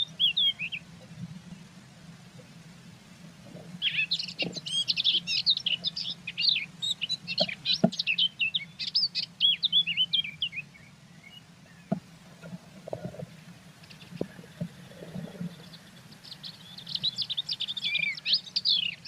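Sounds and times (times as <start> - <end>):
songbird twittering: 0.0 - 1.1, 3.8 - 12.0, 13.8 - 19.0.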